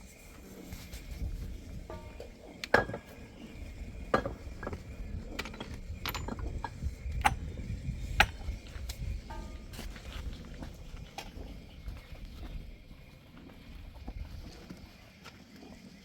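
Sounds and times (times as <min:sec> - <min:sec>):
hard objects clinking and knocking: 0:01.9 - 0:03.2, 0:04.1 - 0:07.4.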